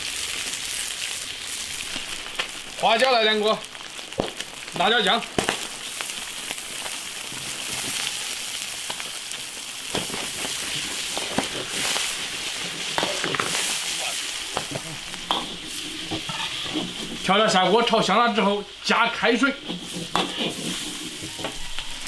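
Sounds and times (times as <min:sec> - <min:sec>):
frying sizzle in a wok: 0:00.0 - 0:22.0
metal ladle scraping a wok: 0:15.2 - 0:17.3, 0:19.6 - 0:22.0.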